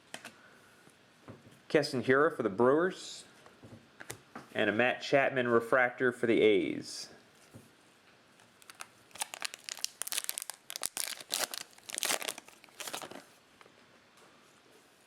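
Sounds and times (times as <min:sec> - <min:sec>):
cellophane wrapper crinkling: 0:08.4 - 0:13.7.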